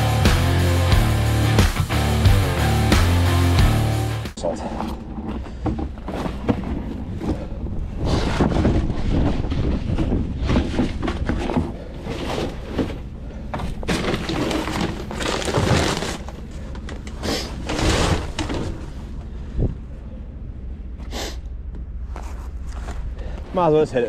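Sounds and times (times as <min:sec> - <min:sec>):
knocks and rattles: 0:04.9 - 0:19.2.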